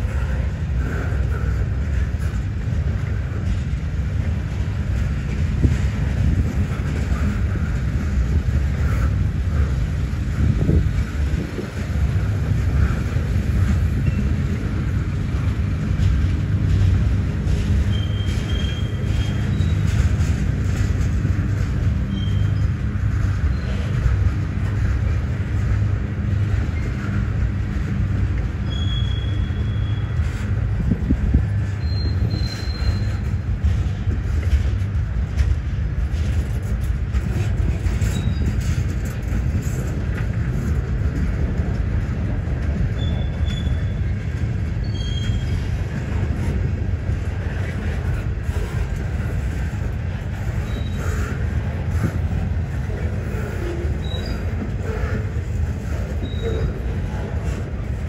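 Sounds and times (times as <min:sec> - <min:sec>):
train wheels rumbling on rail: 0:00.0 - 0:58.0
high-pitched wheel squeaks: 0:14.0 - 0:14.8, 0:17.4 - 0:21.0, 0:21.8 - 0:24.3, 0:28.5 - 0:34.6, 0:37.3 - 0:40.0, 0:42.8 - 0:46.5, 0:50.3 - 0:57.8.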